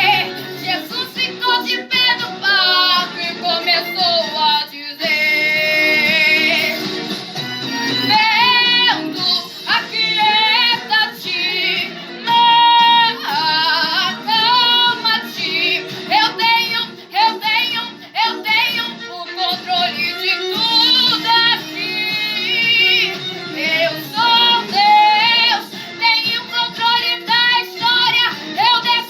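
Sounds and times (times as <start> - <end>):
backing music: 0.0 - 29.0
high solo voice singing: 8.0 - 29.0.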